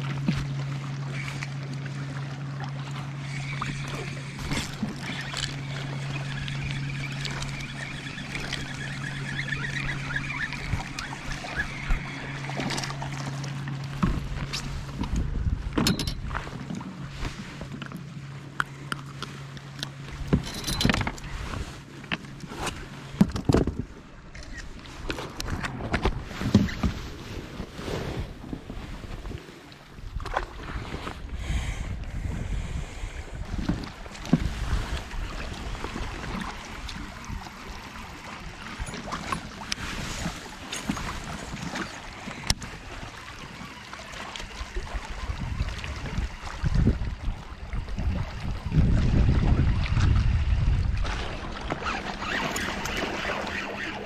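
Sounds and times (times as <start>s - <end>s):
steady low hum: 0.0s - 26.7s
water around kayak: 0.0s - 54.0s
wind buffeting microphone: 14.0s - 17.4s, 30.0s - 43.0s, 44.6s - 54.0s
clicks and knocks on kayak: 22.0s - 27.0s.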